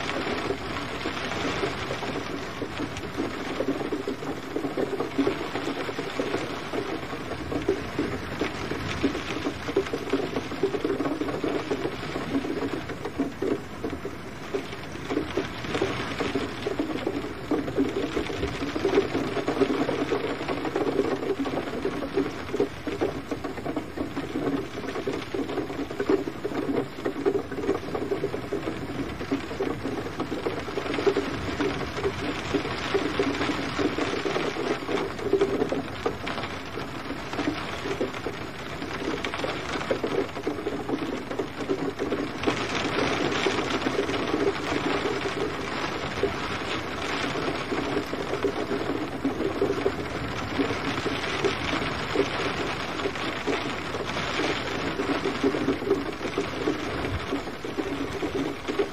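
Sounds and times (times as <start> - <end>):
gentle rain falling: 0.0 - 58.9.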